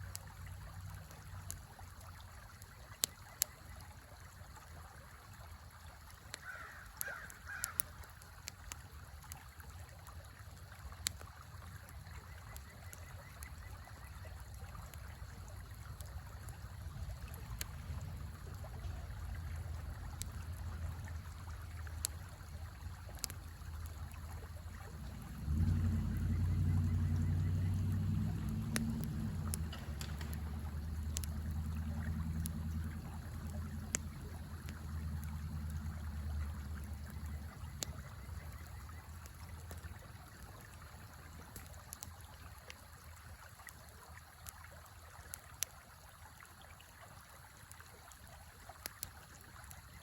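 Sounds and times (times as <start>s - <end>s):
wood fire crackling and popping: 0.0s - 3.7s, 6.0s - 42.8s, 47.6s - 49.9s
bird calling: 6.4s - 7.8s.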